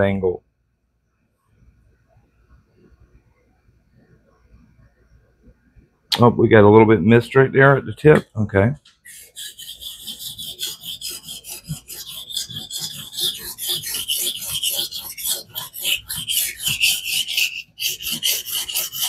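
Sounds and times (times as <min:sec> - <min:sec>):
knife scraping on whetstone: 0:09.1 - 0:19.0.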